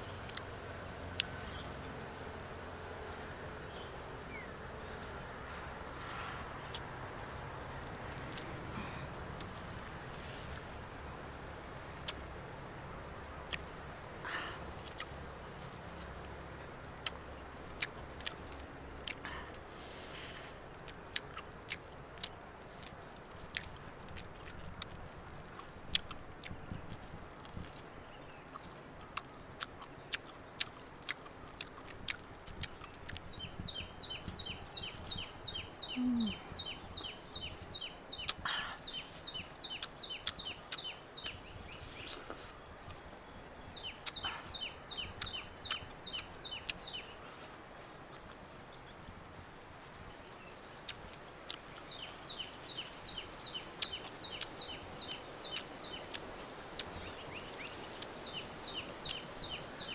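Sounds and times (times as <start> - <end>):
clicks of chewing honeycomb: 15.8 - 35.6, 49.6 - 57.1.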